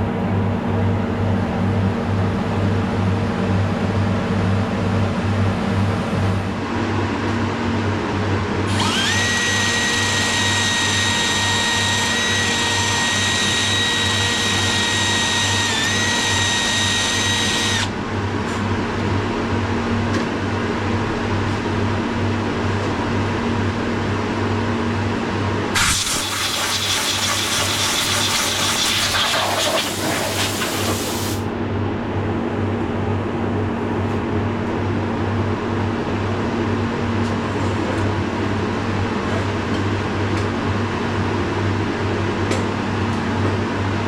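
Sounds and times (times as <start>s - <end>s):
power tool motor whining: 8.7s - 17.9s
hiss: 25.8s - 31.4s.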